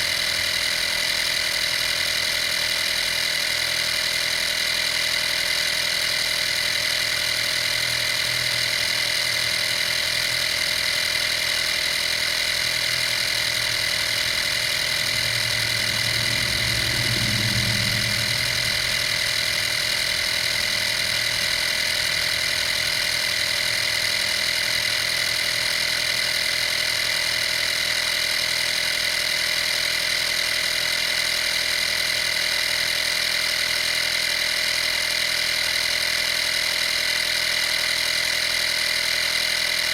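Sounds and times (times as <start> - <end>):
compressor motor whine: 0.0 - 39.9
low hum: 13.9 - 22.7.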